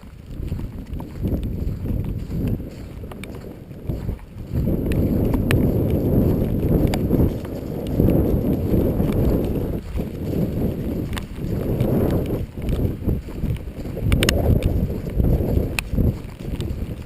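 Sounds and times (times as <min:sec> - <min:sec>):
wind buffeting microphone: 0:00.0 - 0:17.0
faint clicks: 0:13.5 - 0:16.7.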